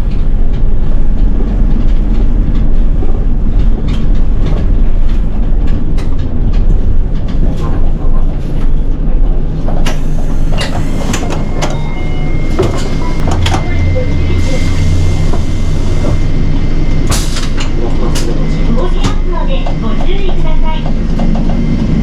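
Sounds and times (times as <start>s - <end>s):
bus engine and road rumble: 0.0s - 22.0s
air brake hiss and clatter: 9.9s - 11.8s.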